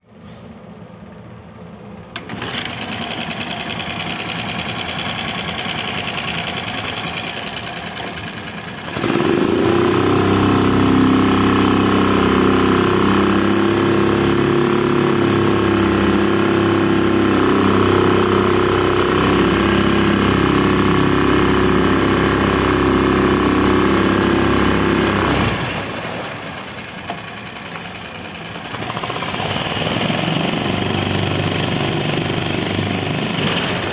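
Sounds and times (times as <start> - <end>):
outboard motor starting and running: 2.2 - 33.9.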